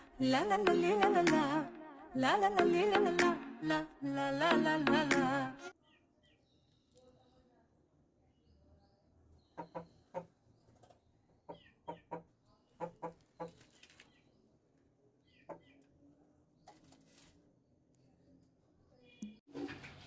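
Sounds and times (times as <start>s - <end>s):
small birds chirping: 8.2s - 17.0s
chickens clucking: 9.5s - 13.7s.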